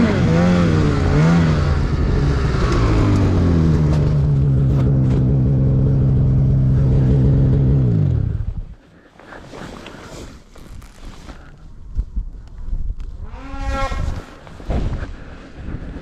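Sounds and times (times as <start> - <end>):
snowmobile engine revving: 0.0 - 8.6, 13.3 - 15.1.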